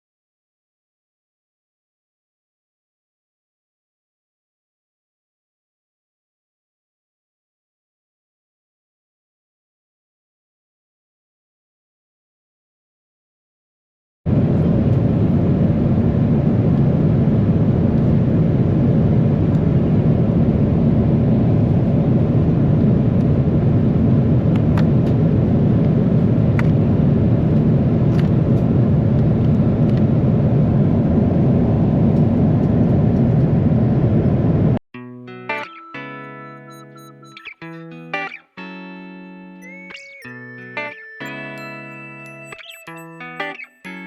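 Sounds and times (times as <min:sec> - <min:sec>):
airliner cabin noise: 0:14.3 - 0:34.8.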